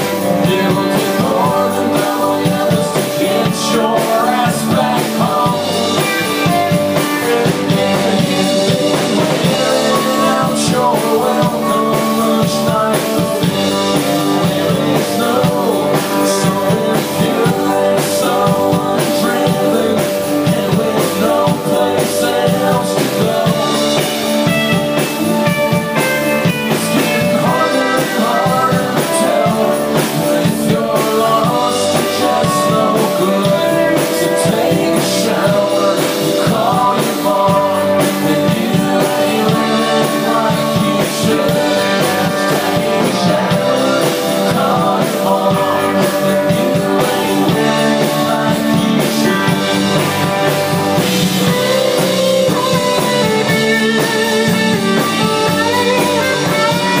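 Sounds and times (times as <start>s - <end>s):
drum kit: 0.0s - 57.0s
electric guitar: 0.0s - 57.0s
person singing: 0.0s - 57.0s.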